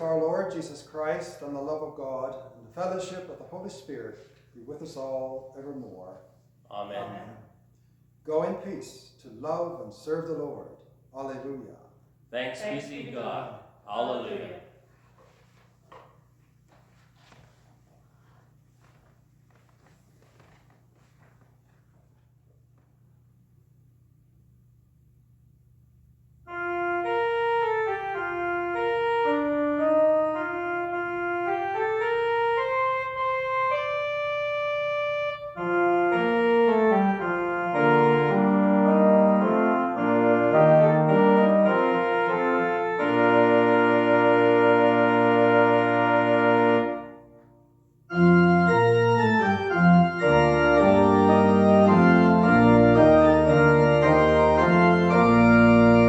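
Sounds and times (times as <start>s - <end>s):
organ playing chords: 0.0s - 3.8s, 26.5s - 56.0s.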